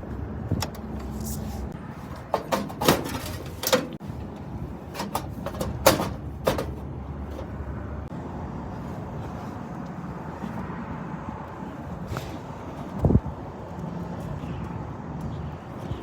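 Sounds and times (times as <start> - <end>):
tools and parts clattering: 0.6 - 7.6.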